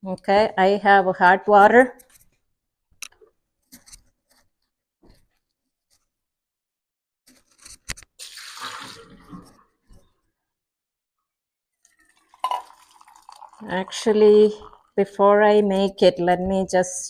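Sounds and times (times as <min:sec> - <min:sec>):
hot water pouring: 0:08.2 - 0:09.6, 0:11.9 - 0:15.1.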